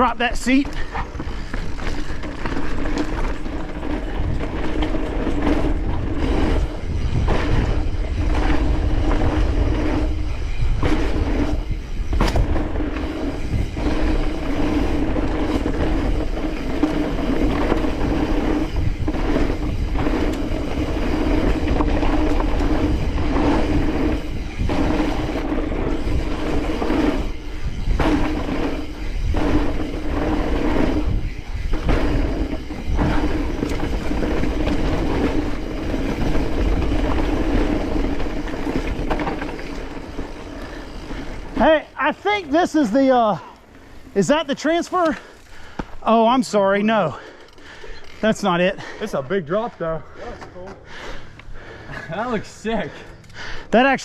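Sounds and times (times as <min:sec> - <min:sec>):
bike tyres rumbling over dirt: 0:00.0 - 0:49.6
wind buffeting microphone: 0:00.8 - 0:41.6
bike rattling knocks: 0:00.8 - 0:41.7.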